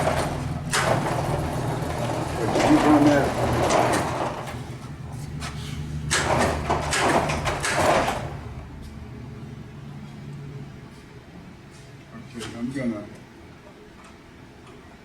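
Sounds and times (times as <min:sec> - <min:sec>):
garage door rattling and sliding: 0:00.0 - 0:08.8
garage door opener motor hum: 0:00.0 - 0:10.8.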